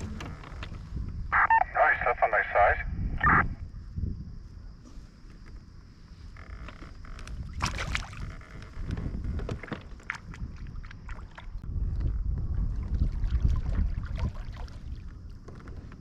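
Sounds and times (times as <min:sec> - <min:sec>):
knocks and clatter in kayak: 0:00.0 - 0:01.2, 0:06.3 - 0:16.0
wind buffeting microphone: 0:00.0 - 0:01.4, 0:02.9 - 0:06.3, 0:06.9 - 0:16.0.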